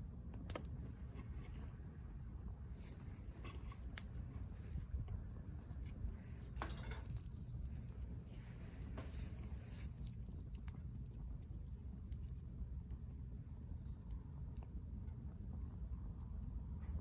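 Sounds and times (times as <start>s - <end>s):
wood fire crackling and popping: 0.0s - 16.5s.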